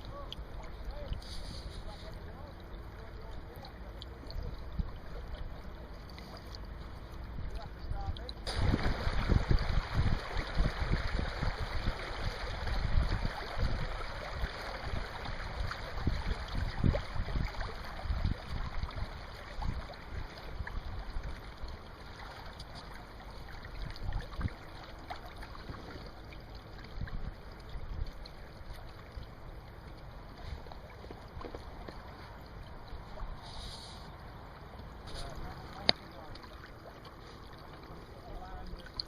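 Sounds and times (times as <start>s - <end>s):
water rushing past boat hull: 0.0s - 39.0s
wind buffeting microphone: 7.2s - 21.2s.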